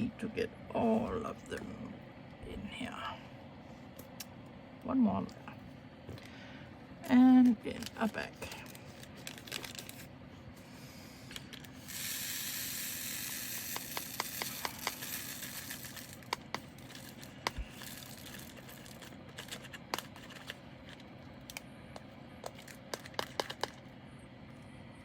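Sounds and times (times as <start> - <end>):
plastic bag crinkling: 7.5 - 10.1, 13.8 - 21.6.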